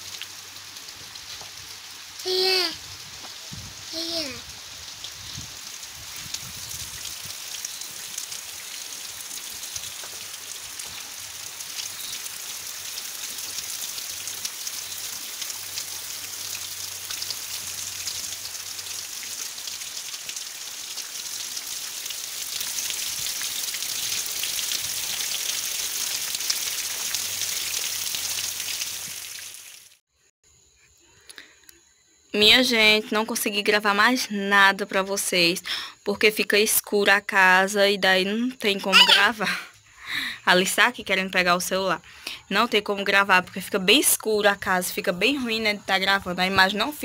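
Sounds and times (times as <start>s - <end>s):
heavy rain pouring: 0.0s - 29.7s.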